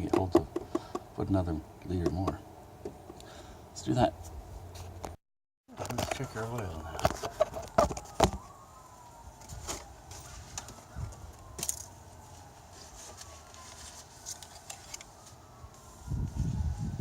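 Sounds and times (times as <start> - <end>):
distant siren wailing: 6.0 - 17.0.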